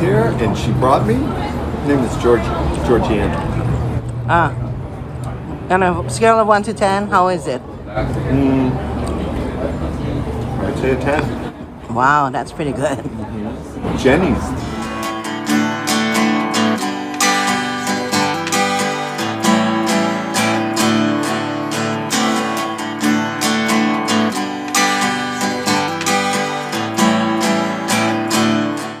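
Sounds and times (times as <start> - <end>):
strummed acoustic guitar: 13.7 - 29.0.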